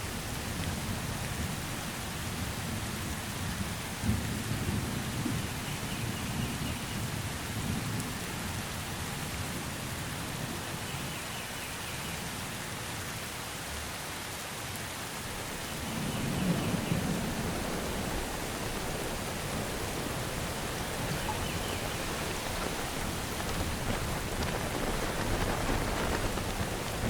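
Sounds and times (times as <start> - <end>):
steady rain in forest: 0.0 - 27.0
distant thunder rumble: 15.3 - 27.0.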